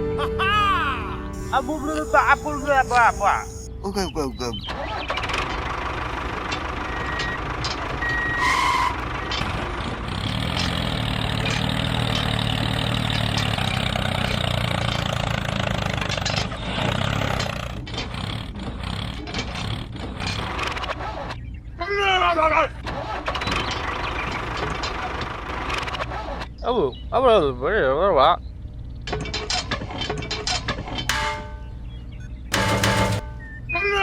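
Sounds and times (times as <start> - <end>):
short beeps: 1.4 - 3.8
vehicle engine running: 5.0 - 20.8.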